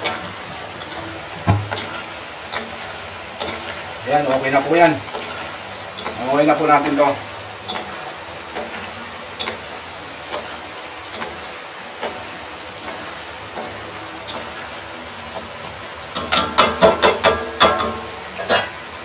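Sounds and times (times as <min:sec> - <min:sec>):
wooden spatula knocking wok: 0:00.0 - 0:18.8
deep-frying crackling fizz: 0:00.0 - 0:19.0.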